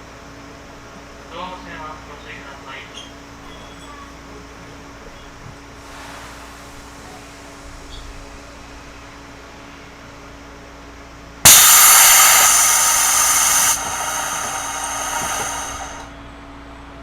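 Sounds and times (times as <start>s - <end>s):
compressed air hissing: 11.5s - 16.2s.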